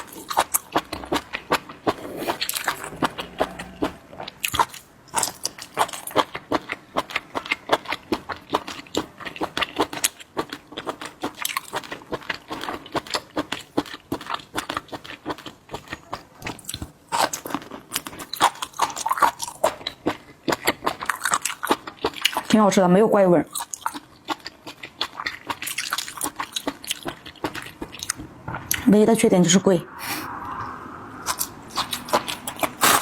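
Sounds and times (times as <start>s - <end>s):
chewing crisp shellfish: 0.0s - 22.6s, 23.5s - 28.9s, 31.3s - 33.0s.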